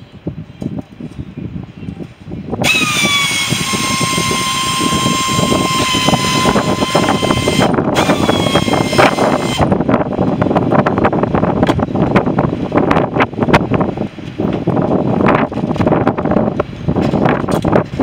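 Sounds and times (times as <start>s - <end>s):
electric power tool cutting: 2.6s - 9.7s.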